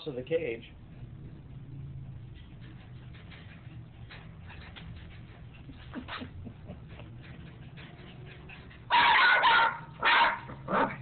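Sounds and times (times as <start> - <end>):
dog barking: 8.9 - 11.0.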